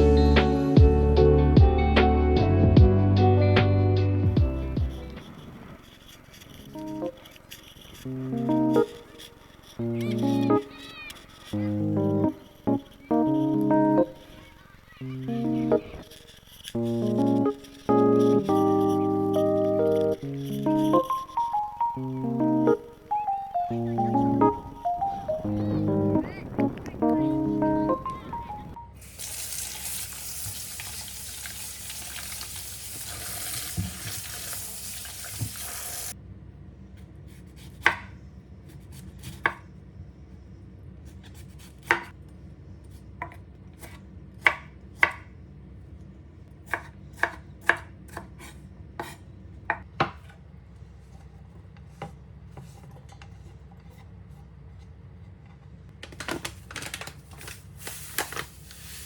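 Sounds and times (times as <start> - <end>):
steady hiss: 20.2 - 36.2, 57.6 - 59.0
knife chopping on cutting board: 37.6 - 38.2, 41.7 - 42.1, 43.2 - 45.3, 46.7 - 50.4.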